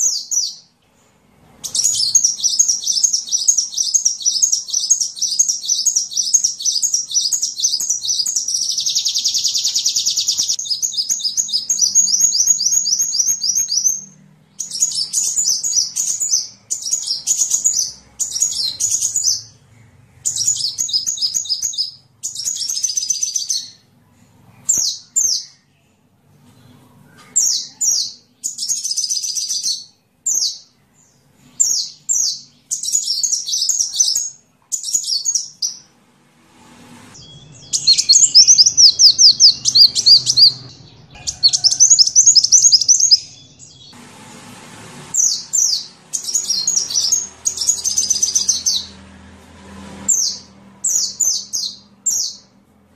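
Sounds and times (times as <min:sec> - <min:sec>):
sunbird chirping trills: 0:01.6 - 0:23.8, 0:37.2 - 0:44.0, 0:45.2 - 0:49.0.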